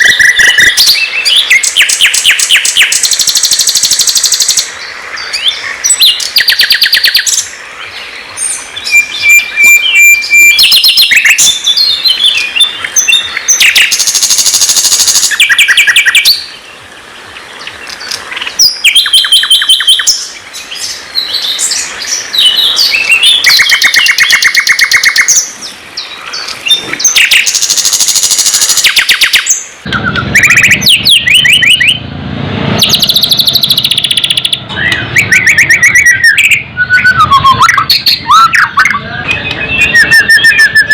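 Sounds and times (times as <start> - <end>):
songbird singing trills: 0.0 - 32.1, 32.7 - 40.9
low rumble: 29.9 - 33.2.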